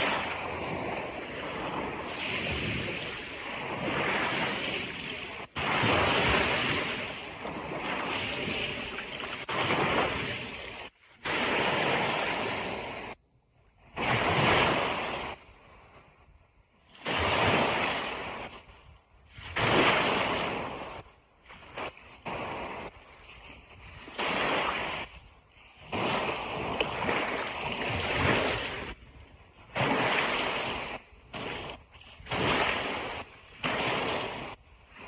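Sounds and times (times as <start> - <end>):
ocean surf washing onto beach: 0.0 - 13.2, 29.6 - 35.0.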